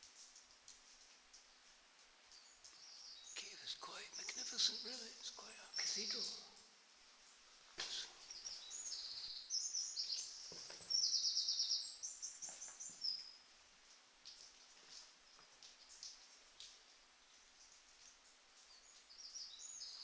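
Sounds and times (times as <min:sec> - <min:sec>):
songbird singing trills: 0:02.3 - 0:06.6, 0:07.8 - 0:13.4, 0:18.6 - 0:20.0.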